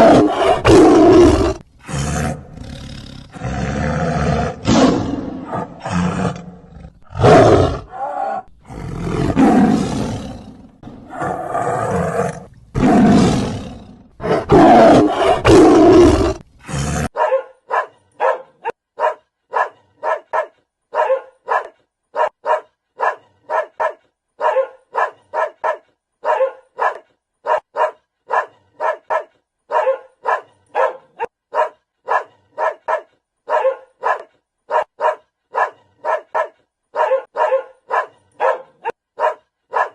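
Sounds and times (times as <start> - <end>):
lion roaring: 0.0 - 17.1
dog barking: 17.1 - 39.9.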